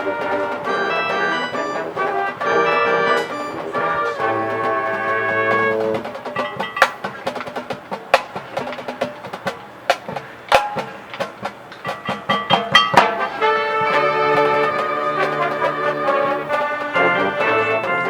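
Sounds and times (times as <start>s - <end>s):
marching band held chords: 0.0s - 18.0s
pitched mallet notes: 0.2s - 8.4s, 11.8s - 18.0s
sharp drum strikes: 1.5s - 18.0s.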